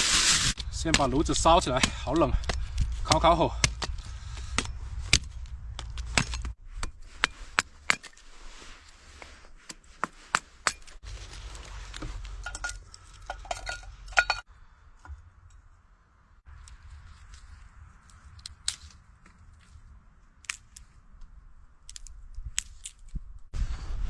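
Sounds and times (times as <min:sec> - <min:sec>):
firewood sticks knocking and snapping: 0:00.6 - 0:08.2, 0:16.5 - 0:19.8, 0:20.4 - 0:23.2.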